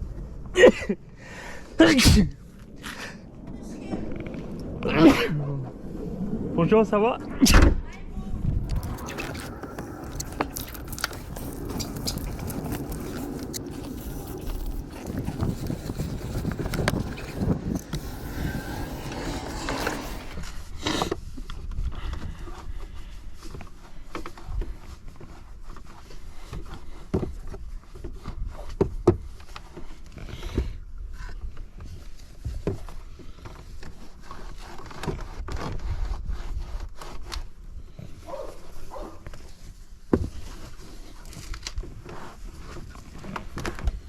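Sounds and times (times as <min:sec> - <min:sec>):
rubbing and scraping: 0:08.6 - 0:21.2, 0:31.8 - 0:44.0.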